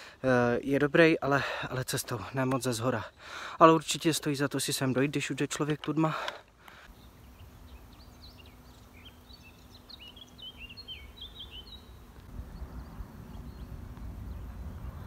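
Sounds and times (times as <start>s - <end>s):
songbird twittering: 6.9s - 15.0s
low rumbling noise: 11.8s - 15.0s.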